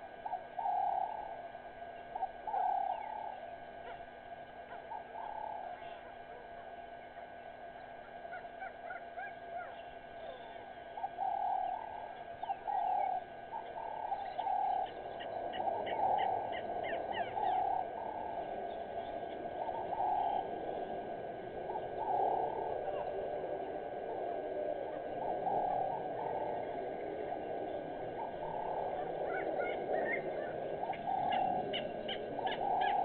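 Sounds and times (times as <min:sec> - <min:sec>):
bird hooting: 0:00.0 - 0:33.0
birds chirping and whistling: 0:07.8 - 0:33.0.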